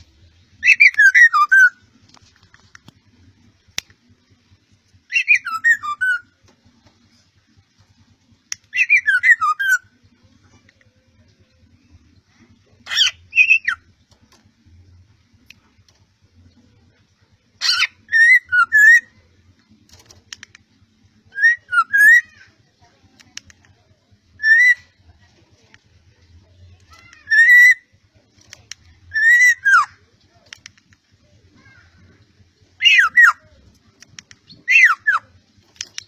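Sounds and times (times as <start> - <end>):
bird whistled calls: 0.6 - 1.8, 5.1 - 6.3, 21.3 - 22.3, 24.4 - 24.9, 32.8 - 33.4, 34.5 - 35.2.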